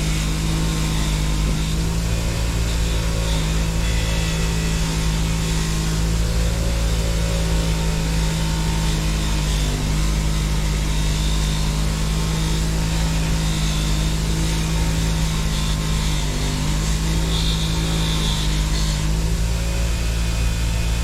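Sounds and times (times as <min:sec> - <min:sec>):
wire brush scrubbing metal blade: 0:00.0 - 0:21.0
wire wheel humming: 0:00.0 - 0:21.0.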